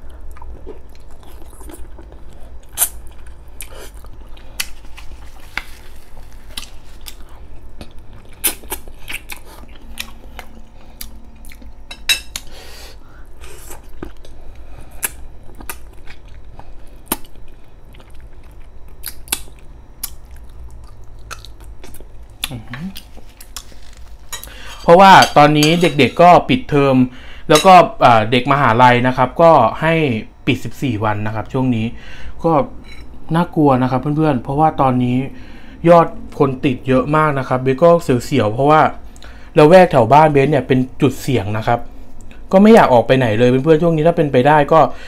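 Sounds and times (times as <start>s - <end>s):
man chewing meat: 0.0s - 24.6s.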